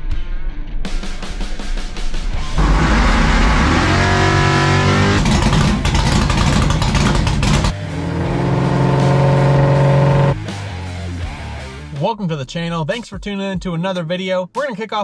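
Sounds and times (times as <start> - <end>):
race car engine accelerating: 2.4 - 10.5.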